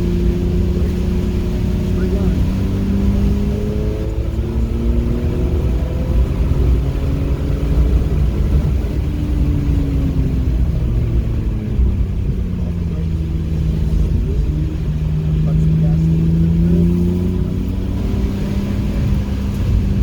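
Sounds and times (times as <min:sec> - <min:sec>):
car engine revving: 0:00.0 - 0:20.0
road and tyre rumble: 0:00.0 - 0:20.0.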